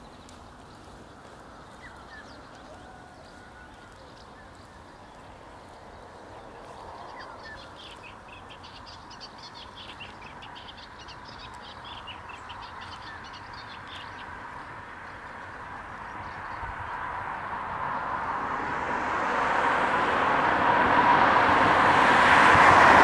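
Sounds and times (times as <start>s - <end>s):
birds chirping: 0.0s - 17.2s.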